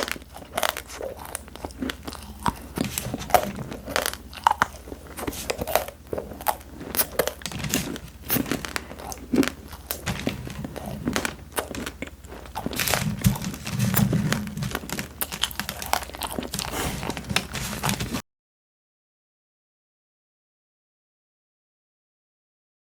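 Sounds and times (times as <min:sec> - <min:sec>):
chewing crunchy snacks: 0:00.0 - 0:18.2.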